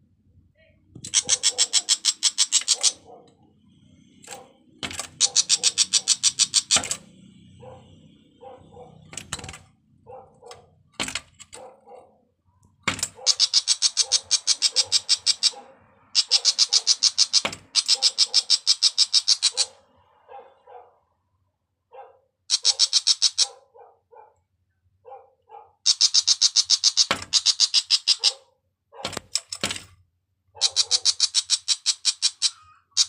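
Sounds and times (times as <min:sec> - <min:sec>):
bird harsh chattering calls: 0:01.0 - 0:03.2, 0:04.0 - 0:07.8, 0:12.9 - 0:19.8, 0:22.5 - 0:23.6, 0:25.8 - 0:28.4, 0:30.6 - 0:33.0
sharp knocks: 0:12.8 - 0:13.2, 0:17.4 - 0:17.7.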